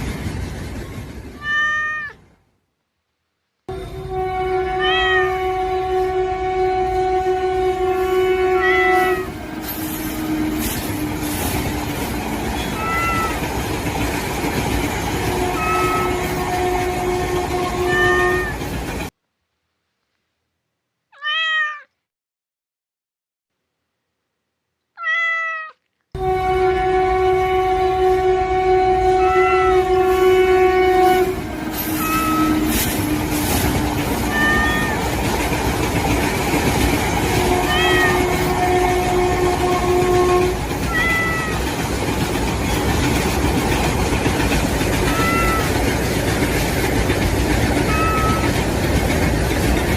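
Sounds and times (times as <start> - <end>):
train rumbling: 0.0 - 2.5, 3.6 - 19.2, 26.2 - 49.9
cat meowing: 1.4 - 2.2, 4.8 - 5.4, 8.6 - 9.3, 12.6 - 13.4, 15.5 - 16.2, 17.8 - 18.6, 21.1 - 22.0, 25.0 - 25.8, 34.1 - 35.1, 37.6 - 38.2, 40.9 - 41.7, 45.0 - 45.8, 47.8 - 48.6
train horn: 3.7 - 13.6, 15.0 - 18.8, 26.2 - 35.5, 37.1 - 42.2, 44.0 - 46.6, 47.6 - 48.7.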